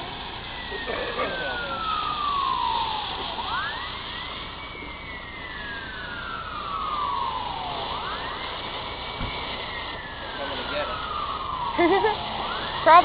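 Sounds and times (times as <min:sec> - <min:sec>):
emergency siren wailing: 0:00.0 - 0:13.0
low thump: 0:09.2 - 0:09.4.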